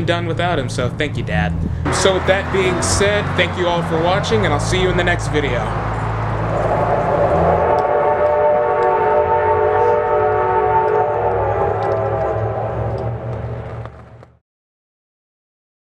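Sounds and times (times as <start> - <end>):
low rumble: 1.8 - 14.4
steam locomotive whistle: 1.9 - 13.9.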